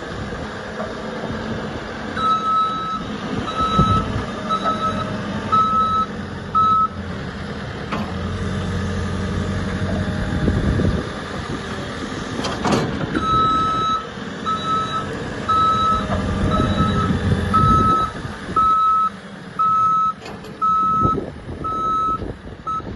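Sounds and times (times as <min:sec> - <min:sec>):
diesel engine running: 0:00.0 - 0:22.9
reversing alarm beeping: 0:02.2 - 0:07.0, 0:13.2 - 0:22.9.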